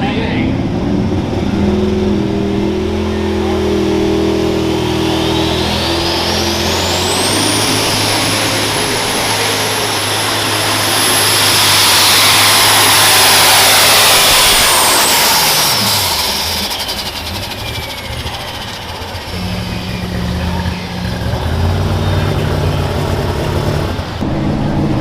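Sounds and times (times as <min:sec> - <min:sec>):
tractor engine at full throttle: 0:00.0 - 0:25.0
turbocharger whine: 0:00.0 - 0:25.0
rapid engine crackle: 0:05.0 - 0:24.3.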